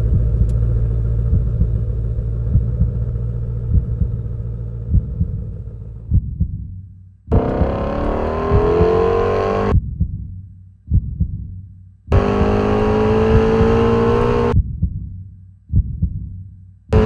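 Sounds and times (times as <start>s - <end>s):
car engine accelerating hard: 7.3s - 9.8s, 12.1s - 14.6s
low double thump: 7.3s - 9.9s.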